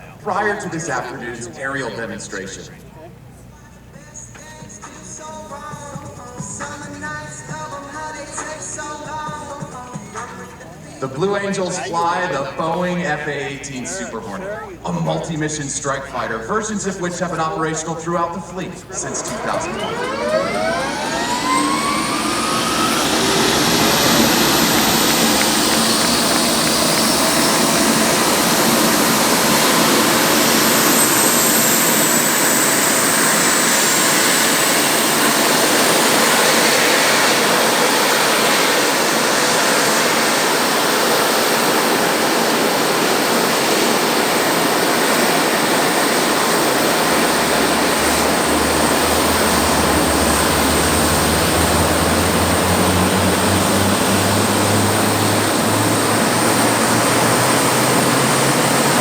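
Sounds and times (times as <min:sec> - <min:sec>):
jet engines whining: 0:00.0 - 0:59.0
low hum: 0:00.0 - 0:59.0.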